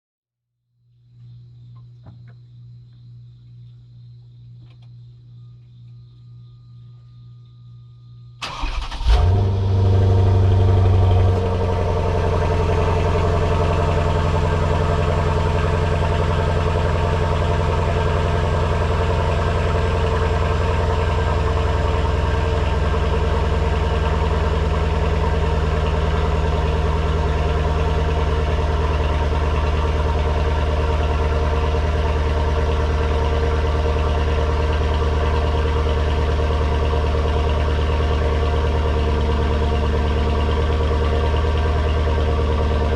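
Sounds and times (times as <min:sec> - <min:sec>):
engine cranking: 0:08.4 - 0:09.4
car engine idling: 0:08.4 - 0:42.9.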